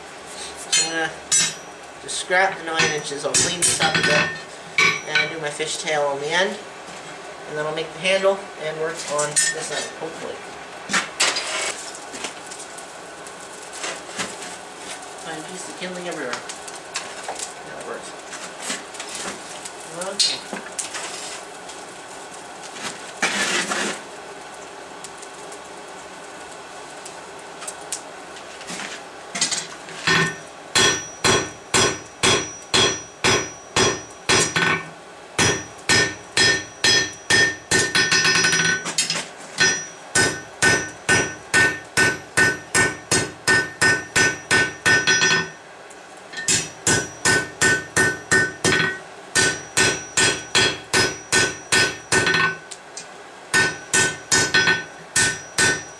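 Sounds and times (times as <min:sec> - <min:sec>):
hammer striking steel on anvil: 0:00.7 - 0:01.7, 0:02.8 - 0:05.4, 0:30.1 - 0:38.8, 0:39.6 - 0:45.6, 0:46.4 - 0:52.6, 0:53.5 - 0:55.9.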